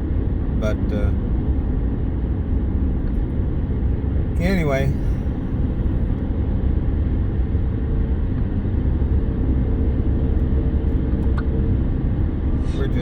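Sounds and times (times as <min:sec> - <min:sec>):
car engine: 0:00.0 - 0:13.0.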